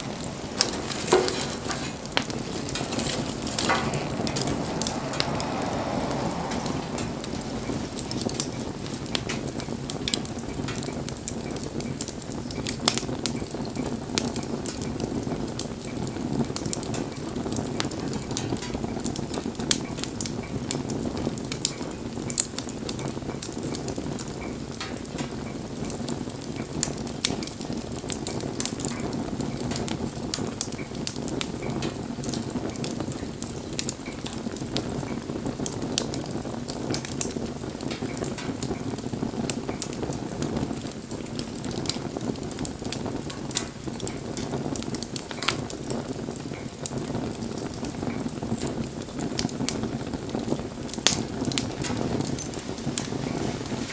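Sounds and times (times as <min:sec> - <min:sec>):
steady low rush: 0:00.0 - 0:09.9
campfire crackling: 0:00.0 - 0:53.9
sharp pops of fire: 0:00.0 - 0:53.9.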